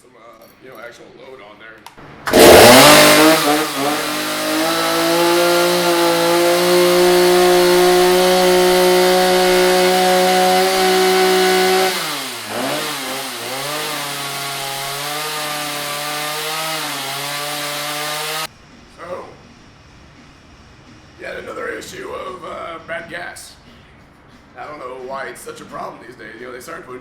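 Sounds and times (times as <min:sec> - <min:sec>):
chainsaw running: 0:02.3 - 0:18.5.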